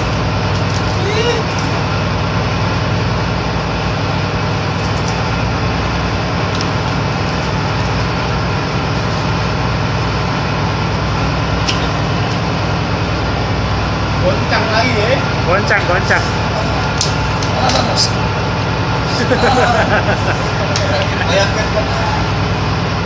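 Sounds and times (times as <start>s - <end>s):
ship machinery droning: 0.0s - 23.0s.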